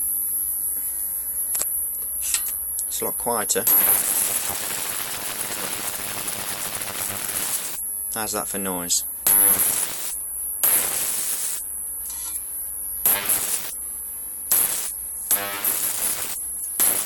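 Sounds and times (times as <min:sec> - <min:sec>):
high-pitched whine: 0:01.5 - 0:08.5, 0:09.3 - 0:13.9, 0:14.5 - 0:17.0
high-voltage arcs hissing and buzzing: 0:03.6 - 0:07.8, 0:09.2 - 0:13.8, 0:14.4 - 0:17.0.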